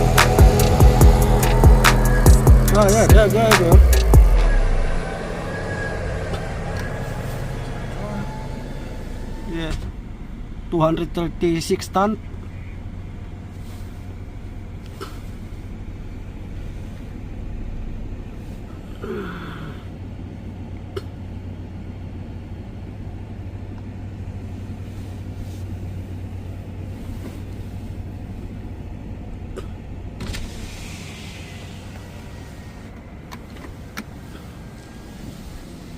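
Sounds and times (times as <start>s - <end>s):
short falling tone: 0.0s - 10.2s
diesel truck engine droning: 0.0s - 35.9s.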